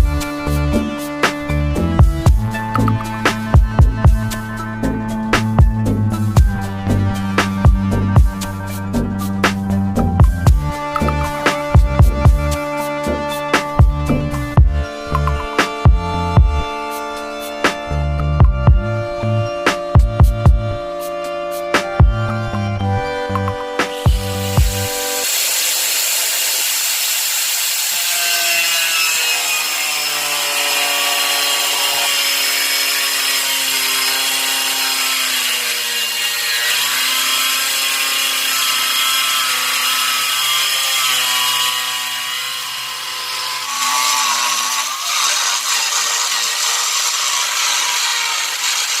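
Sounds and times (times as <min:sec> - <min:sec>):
saw motor whine: 0:00.0 - 0:49.0
blade hissing through wood: 0:23.5 - 0:49.0.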